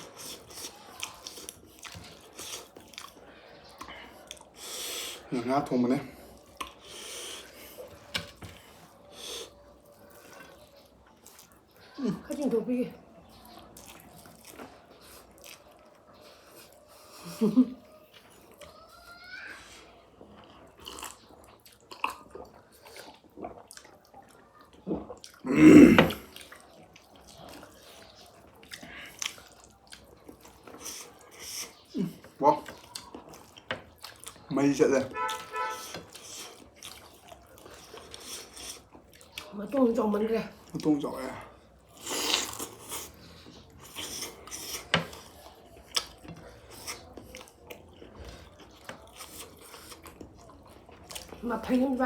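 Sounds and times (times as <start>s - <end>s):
chewing smacks and clicks: 0.0s - 5.3s, 6.2s - 12.6s, 13.2s - 17.2s, 20.1s - 25.5s, 26.2s - 51.9s
wet mouth sound: 42.0s - 43.2s.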